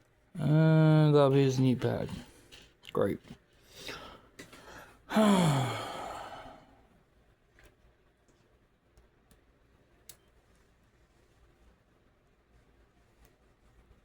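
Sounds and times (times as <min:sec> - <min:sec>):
man sighing: 0:05.1 - 0:06.8.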